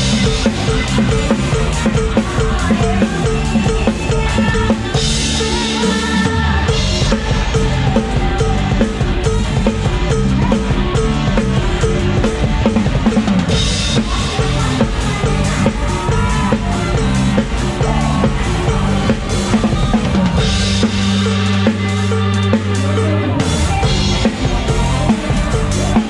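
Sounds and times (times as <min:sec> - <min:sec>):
live band playing upbeat music: 0:00.0 - 0:26.0.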